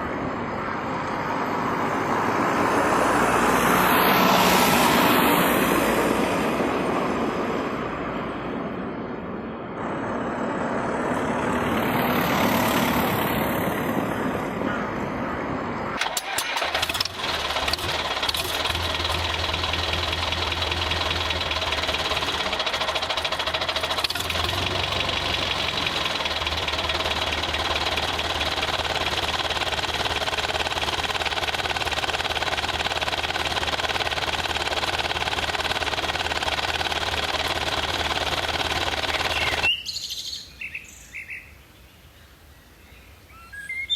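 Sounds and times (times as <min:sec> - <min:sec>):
tractor-like engine knocking: 0:16.0 - 0:39.7.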